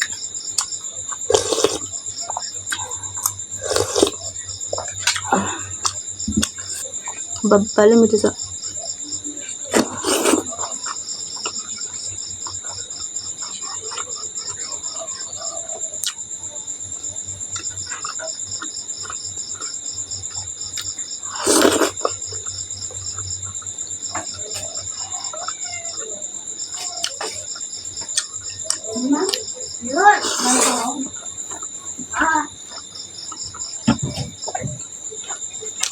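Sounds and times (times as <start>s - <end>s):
insects trilling: 0.0s - 35.9s
eating mouth sounds: 0.6s - 6.9s, 9.7s - 11.6s, 20.8s - 22.2s, 26.7s - 27.6s, 30.1s - 31.7s.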